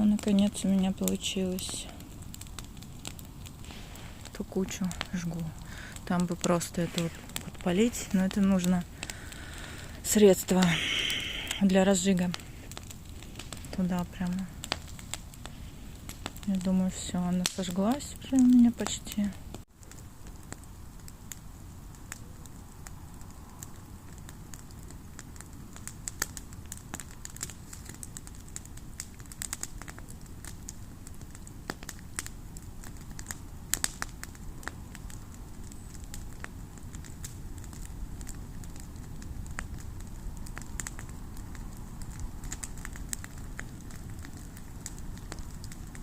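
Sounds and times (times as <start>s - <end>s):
low steady rumble: 0.0s - 20.9s
bonfire crackling and popping: 0.0s - 46.0s.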